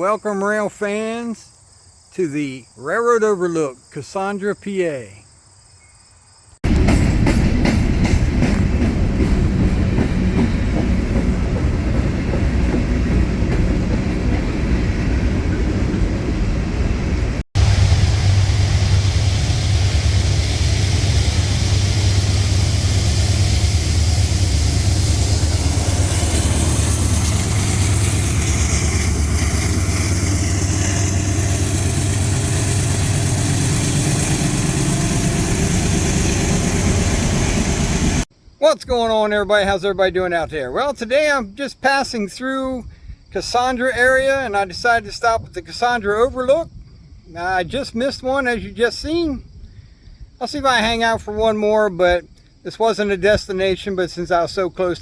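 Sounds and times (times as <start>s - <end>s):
freight train passing: 6.6s - 38.3s.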